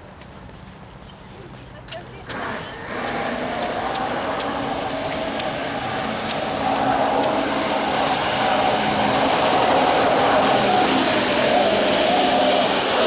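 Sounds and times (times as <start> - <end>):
jet kayak motor whine: 2.3 - 13.0
rushing noise: 2.3 - 13.0.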